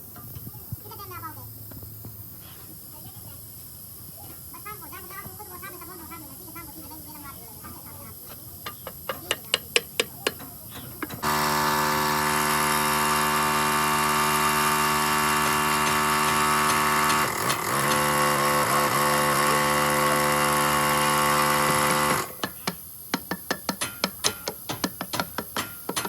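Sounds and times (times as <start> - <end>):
power tool running: 11.0 - 22.6.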